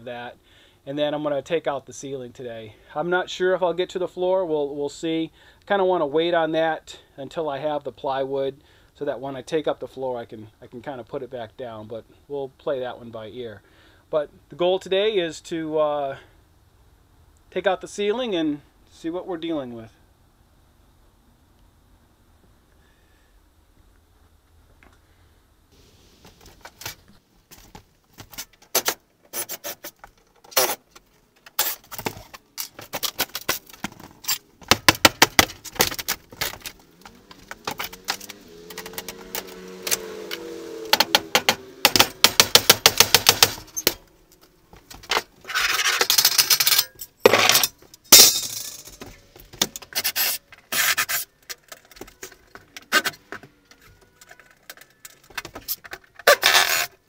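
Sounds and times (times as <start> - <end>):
wood rubbing and scraping: 26.0 - 39.9, 40.9 - 46.3
knocks and clicks on wood: 34.6 - 39.2, 40.9 - 43.7
fast run of clicks: 34.8 - 45.1.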